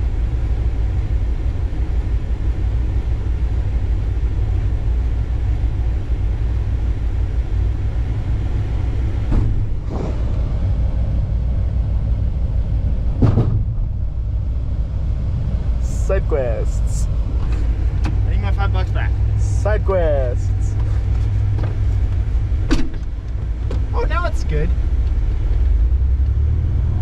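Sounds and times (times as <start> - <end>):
vehicle low rumble: 0.0 - 27.0
short knocks: 13.2 - 13.8.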